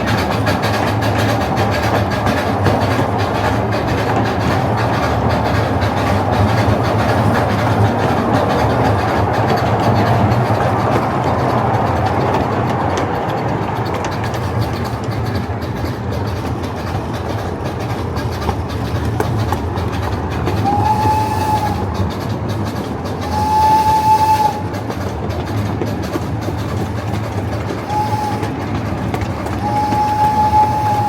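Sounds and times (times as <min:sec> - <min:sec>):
steam train running: 0:00.0 - 0:31.0
steam whistle blowing: 0:20.6 - 0:22.0, 0:23.2 - 0:24.8, 0:27.8 - 0:28.6, 0:29.5 - 0:31.0.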